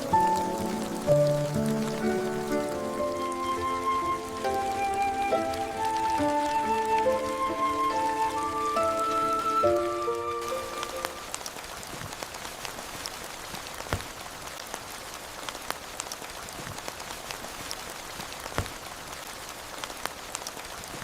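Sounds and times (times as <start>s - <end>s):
heavy drips: 0.0s - 11.8s
steady rain: 0.0s - 21.0s.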